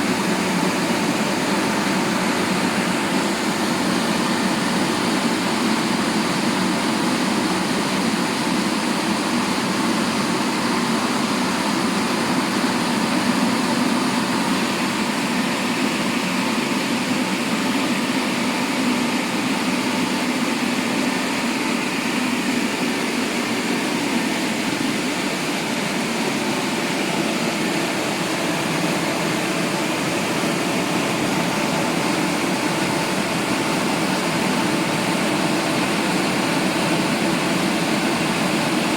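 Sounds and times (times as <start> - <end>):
car wash machine rushing: 0.0 - 38.9.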